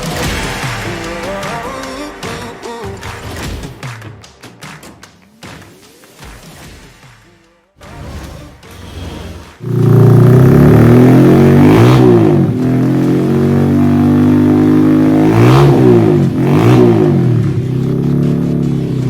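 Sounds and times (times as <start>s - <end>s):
engine revving: 7.8s - 19.0s.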